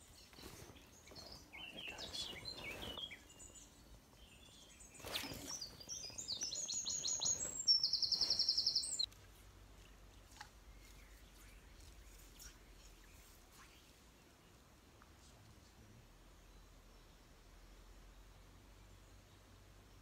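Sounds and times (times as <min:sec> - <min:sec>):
songbird singing a trill: 0:00.0 - 0:09.1.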